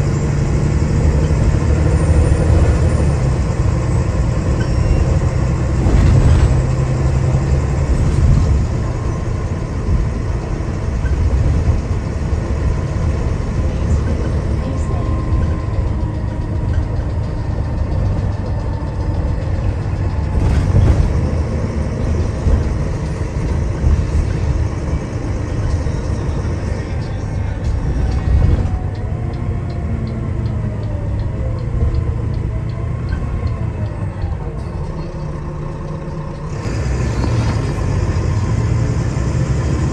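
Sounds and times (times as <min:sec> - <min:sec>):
bus diesel engine running: 0:00.0 - 0:39.9
road noise: 0:00.0 - 0:39.9.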